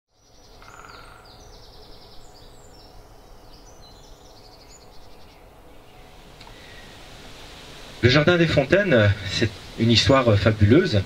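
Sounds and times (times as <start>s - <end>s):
birds singing: 0.1s - 7.1s.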